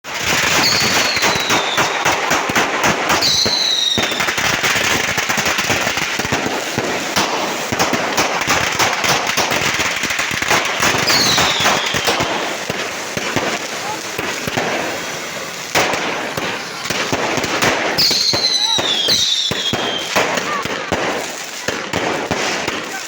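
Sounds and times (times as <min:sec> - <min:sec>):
firecrackers crackling: 0:00.0 - 0:23.0
firework whistles falling in pitch: 0:00.5 - 0:02.1, 0:03.1 - 0:04.4, 0:10.8 - 0:12.3, 0:16.0 - 0:20.6.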